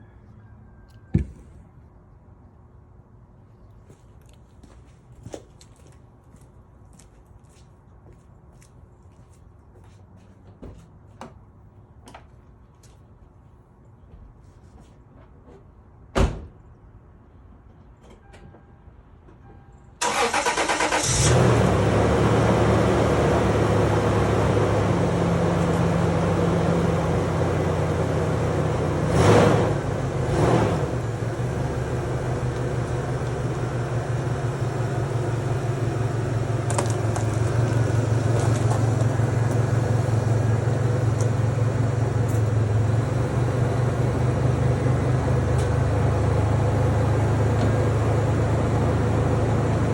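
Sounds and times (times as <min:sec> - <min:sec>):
car engine idling: 0:20.0 - 0:49.9
engine revving: 0:20.0 - 0:49.9.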